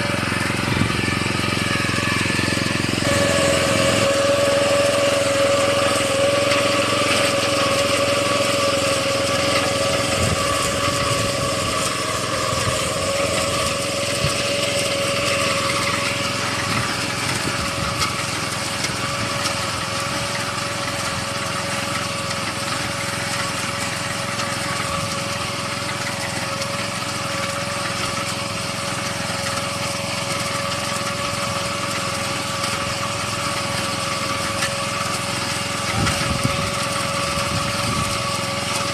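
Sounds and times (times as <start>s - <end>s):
small petrol engine running: 0.0s - 38.9s.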